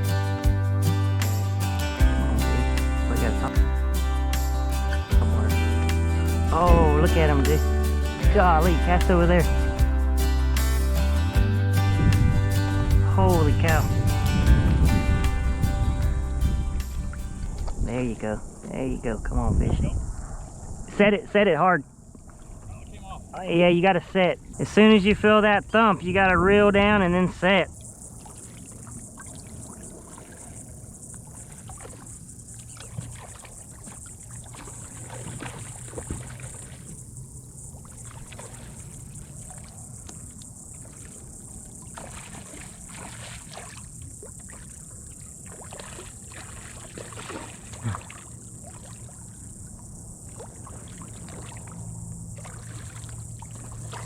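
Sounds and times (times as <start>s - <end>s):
insects humming: 0.0s - 54.0s
water lapping around kayak: 4.8s - 9.8s, 16.5s - 18.7s, 21.9s - 54.0s.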